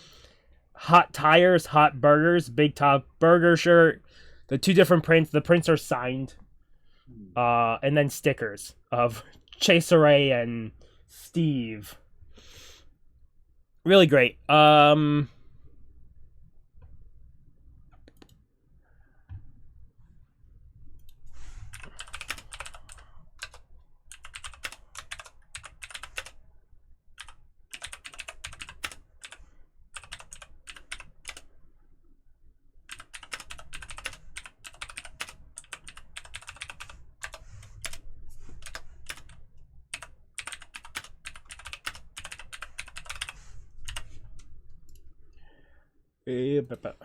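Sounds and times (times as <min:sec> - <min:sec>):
computer keyboard typing: 0:21.0 - 0:26.4, 0:27.2 - 0:31.5, 0:32.9 - 0:38.0, 0:38.6 - 0:45.0.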